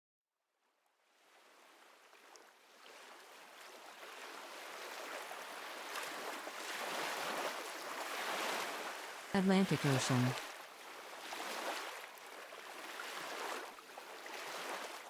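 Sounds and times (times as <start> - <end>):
ocean waves: 2.7 - 15.0
rushing water: 5.0 - 15.0.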